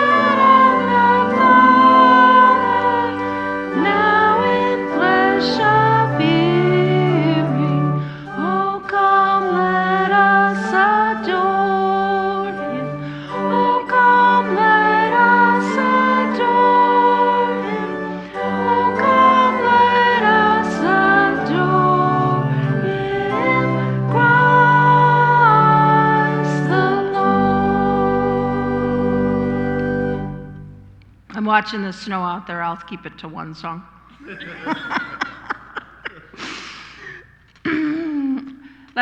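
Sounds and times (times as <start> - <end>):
congregation singing a hymn: 0.0 - 30.9
organ: 0.0 - 31.4.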